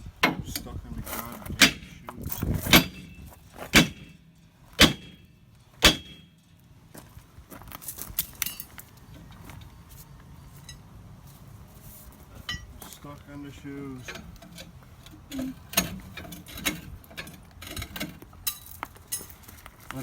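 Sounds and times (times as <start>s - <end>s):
metallic clinks and rattles: 7.8s - 9.7s, 13.9s - 19.7s.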